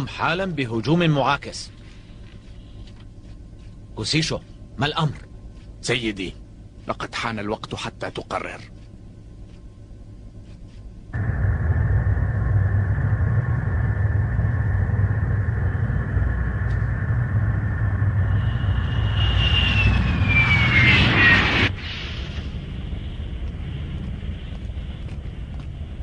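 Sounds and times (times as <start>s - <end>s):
falling whine: 11.1s - 26.0s
flying craft engine rumble: 11.2s - 26.0s.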